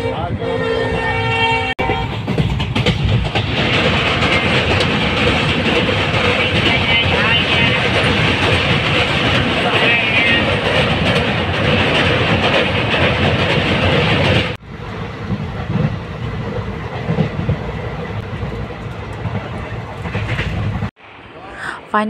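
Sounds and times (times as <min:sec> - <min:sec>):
train rumble inside carriage: 0:00.0 - 0:21.0
wheels rattling on rails: 0:01.8 - 0:20.9.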